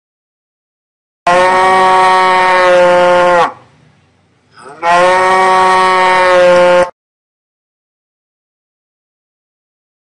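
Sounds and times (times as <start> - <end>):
cow mooing: 1.3 - 3.6, 4.6 - 6.9.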